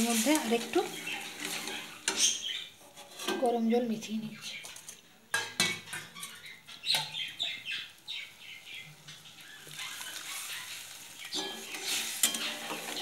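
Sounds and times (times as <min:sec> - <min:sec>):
bird chirping: 0:00.9 - 0:02.8, 0:05.8 - 0:11.5.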